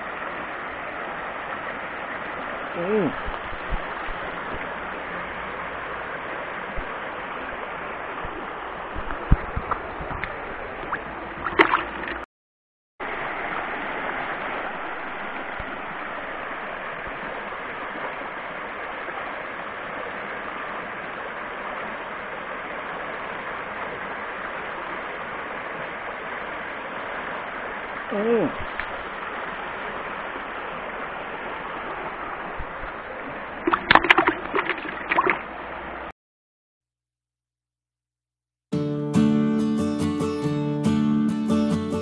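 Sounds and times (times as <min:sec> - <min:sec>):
creek water gurgling: 0:00.0 - 0:12.3, 0:13.0 - 0:36.1.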